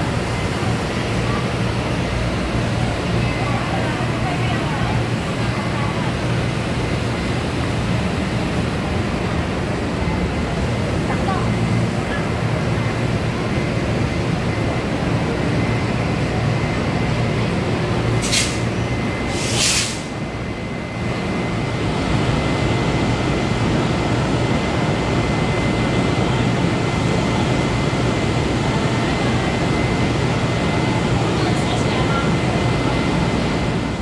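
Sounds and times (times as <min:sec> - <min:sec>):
short air hisses: 0:18.2 - 0:18.7, 0:19.3 - 0:20.2.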